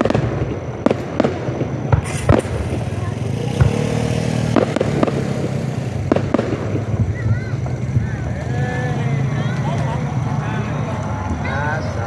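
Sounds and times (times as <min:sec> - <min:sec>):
crowd voices: 0:00.0 - 0:12.0
firework bangs: 0:00.0 - 0:12.0
vehicle engines: 0:00.0 - 0:12.0.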